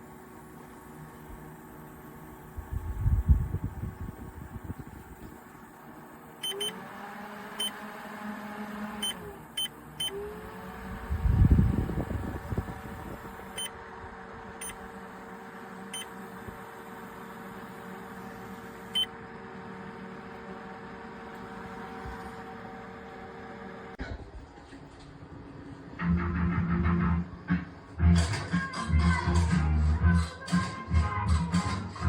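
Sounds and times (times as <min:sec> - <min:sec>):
fan motor humming: 0:00.0 - 0:32.0
short button beeps: 0:06.4 - 0:06.8.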